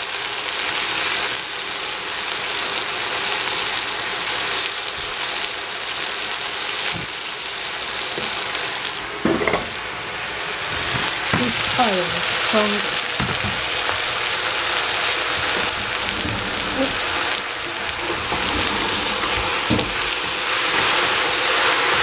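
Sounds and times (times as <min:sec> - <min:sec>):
vegetables sizzling in a pot: 0:00.0 - 0:22.0
pot scraping on burner grate: 0:10.6 - 0:22.0.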